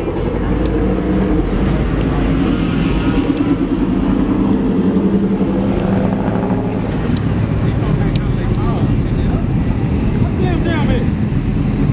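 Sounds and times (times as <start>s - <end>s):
truck engine running loud: 0.0s - 11.9s.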